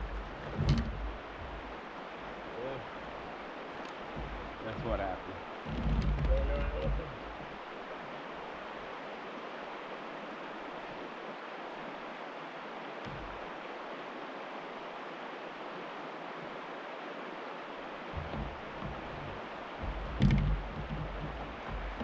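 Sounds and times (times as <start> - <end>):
low bump: 0.0 - 1.7, 4.1 - 7.4, 18.2 - 22.0
river water rushing: 0.0 - 22.0.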